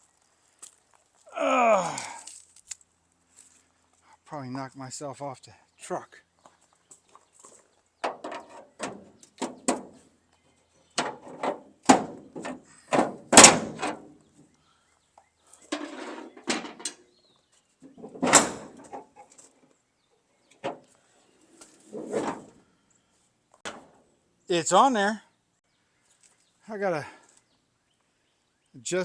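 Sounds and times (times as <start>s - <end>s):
metal tailgate knocks and clanks: 8.0s - 10.0s, 11.0s - 14.1s, 15.8s - 17.0s, 17.9s - 19.1s
metal scrape: 15.7s - 16.8s.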